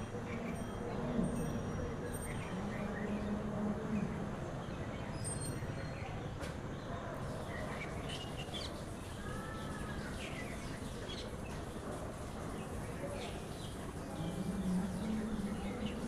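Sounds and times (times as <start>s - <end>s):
small birds chirping: 4.8s - 16.0s.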